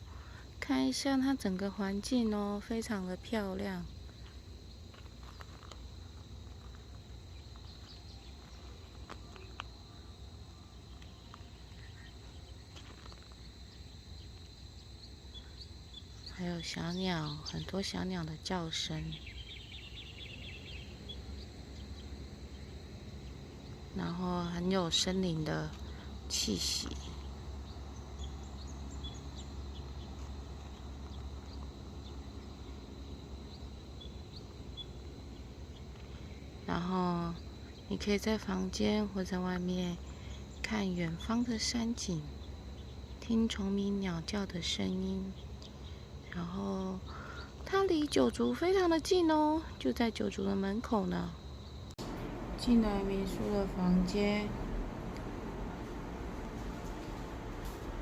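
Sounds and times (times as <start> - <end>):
insects trilling: 0.0 - 58.0
low steady rumble: 0.0 - 58.0
faint bird chirps: 7.3 - 50.5
low rumble: 51.9 - 58.0.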